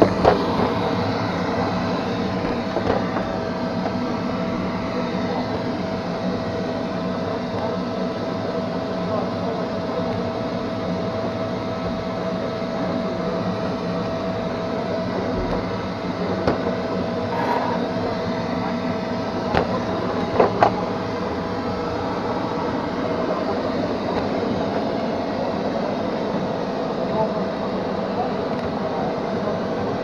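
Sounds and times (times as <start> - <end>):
robot vacuum motor hum: 0.0 - 4.9, 15.2 - 18.2
sharp knocks: 15.3 - 16.0.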